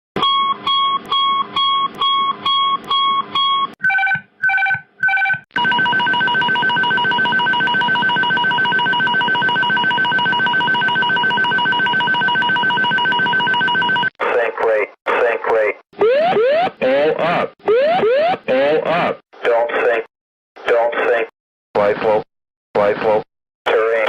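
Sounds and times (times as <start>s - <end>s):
pulsing ringing alarm: 3.9s - 14.0s.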